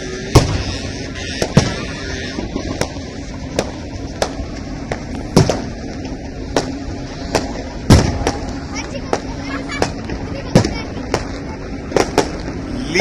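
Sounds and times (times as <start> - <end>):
fireworks bursting: 0.0 - 13.0
steady background noise: 0.0 - 13.0.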